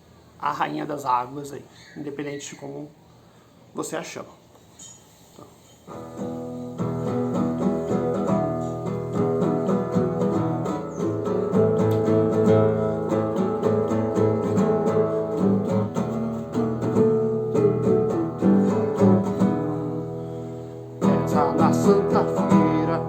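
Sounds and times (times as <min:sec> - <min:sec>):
acoustic guitar strumming: 0:05.9 - 0:23.0.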